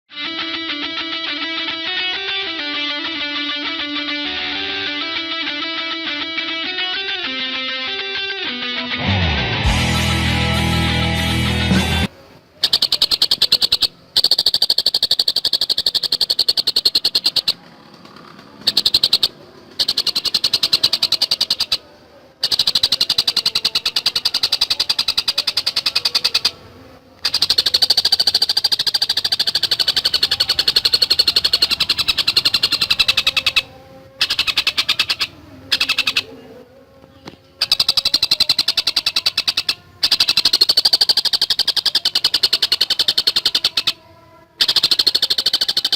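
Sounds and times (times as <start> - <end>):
kingfisher chattering call: 12.6 - 17.6, 18.6 - 21.8, 22.4 - 26.6, 27.2 - 36.5, 37.6 - 45.9.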